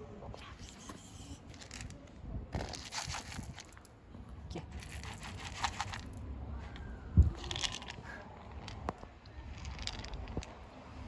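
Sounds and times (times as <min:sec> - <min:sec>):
kittens crunching and chewing: 0:02.6 - 0:03.9, 0:04.6 - 0:06.2.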